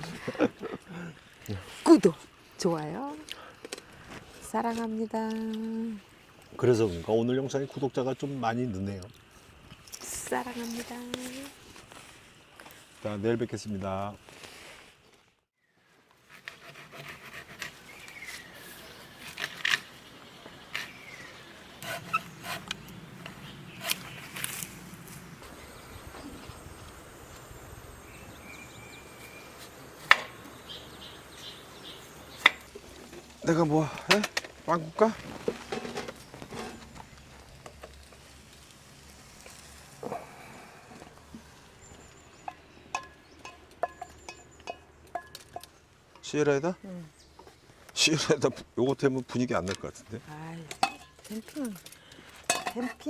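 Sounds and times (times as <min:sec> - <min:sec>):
falling whistled bird calls: 0:19.8 - 0:24.5
metallic clinks of cookware: 0:50.8 - 0:53.0.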